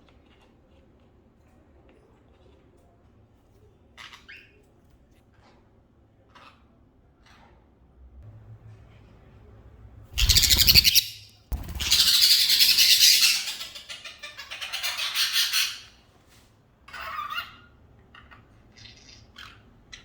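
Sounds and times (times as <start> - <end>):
bird squawking: 10.2 - 15.9.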